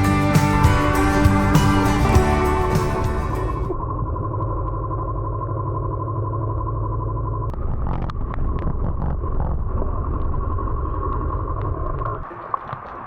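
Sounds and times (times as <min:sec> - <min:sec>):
motorcycle engine rumble: 0:00.0 - 0:04.0.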